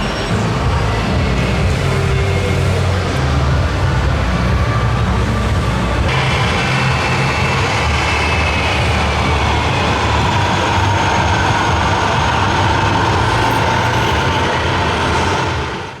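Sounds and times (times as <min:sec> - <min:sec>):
model truck motor rumble: 0:00.7 - 0:16.0
whine falling in pitch: 0:06.1 - 0:15.7.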